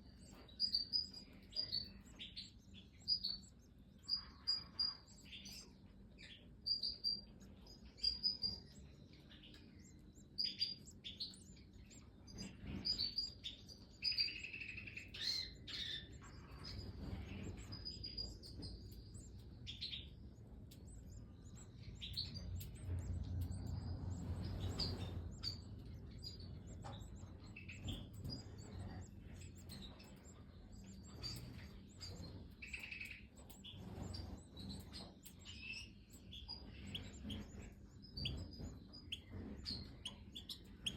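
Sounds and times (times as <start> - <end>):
finches chirping: 0.0 - 40.9
low rumble: 16.2 - 32.3.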